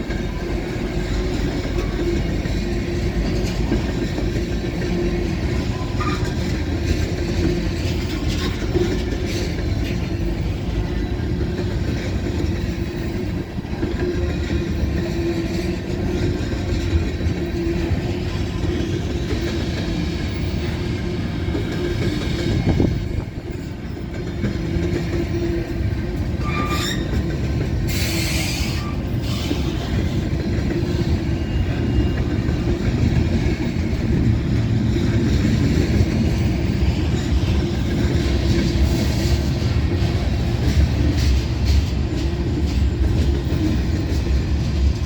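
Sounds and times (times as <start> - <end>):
train wheels rumbling on rail: 0.0 - 45.0
wheel squeal: 5.5 - 6.7, 26.4 - 34.0.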